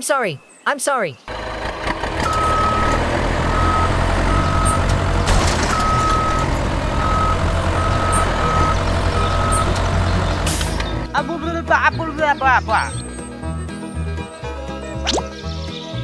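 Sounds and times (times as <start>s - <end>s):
heavy machinery engine running: 1.3s - 11.1s
reversing alarm beeps: 2.2s - 4.9s, 5.5s - 9.8s.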